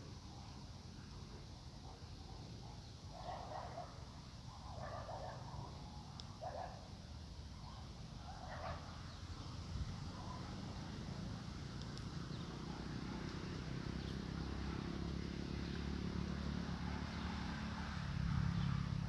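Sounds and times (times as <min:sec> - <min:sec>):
vehicle engine hum: 0:10.0 - 0:19.0.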